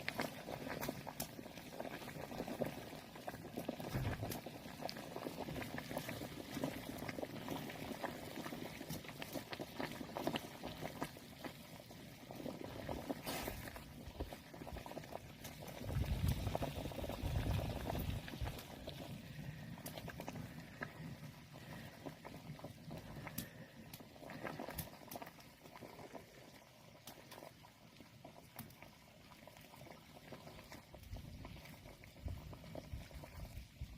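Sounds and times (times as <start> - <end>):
pot boiling: 0.0 - 33.9.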